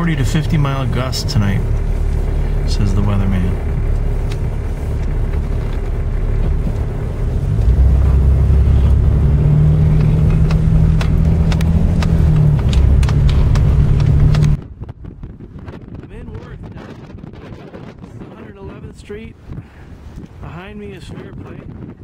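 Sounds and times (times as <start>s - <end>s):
engine and road hum in car: 0.0s - 15.9s
light clicks: 10.0s - 14.6s.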